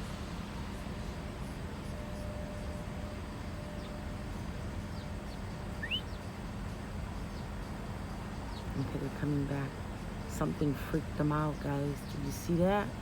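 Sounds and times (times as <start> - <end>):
low outdoor rumble: 0.0 - 13.0
bird chirps: 5.0 - 6.2.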